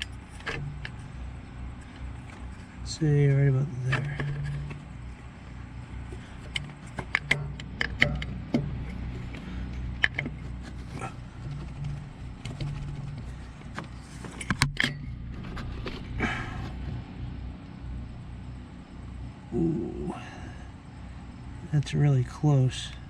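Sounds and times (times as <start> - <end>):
metallic clicks and knocks: 0.0 - 1.1, 3.8 - 4.9, 6.1 - 15.2
low steady hum: 0.0 - 23.0.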